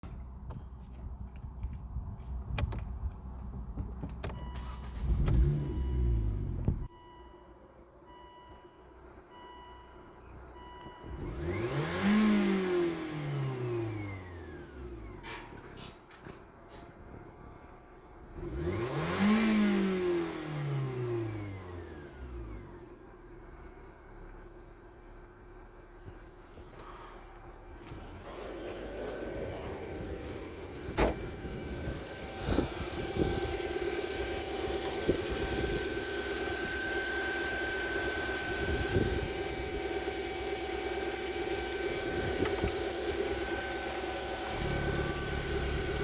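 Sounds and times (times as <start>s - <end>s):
car engine running: 21.7s - 46.0s.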